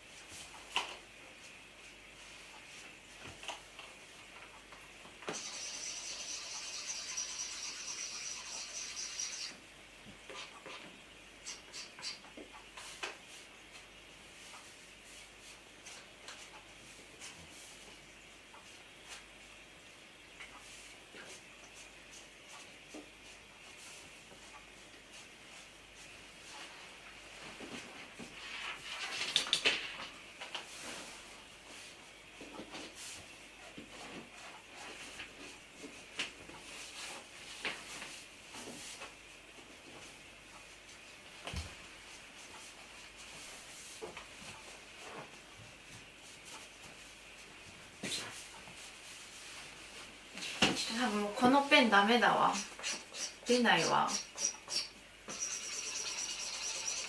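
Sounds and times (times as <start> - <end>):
marker squeaking on balloon: 52.5 - 53.4, 54.1 - 57.0.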